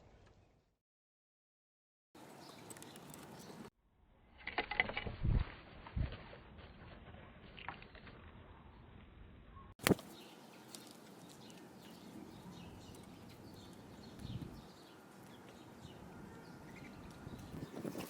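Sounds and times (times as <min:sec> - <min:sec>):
small birds chirping softly: 0:02.2 - 0:03.7, 0:09.5 - 0:18.0.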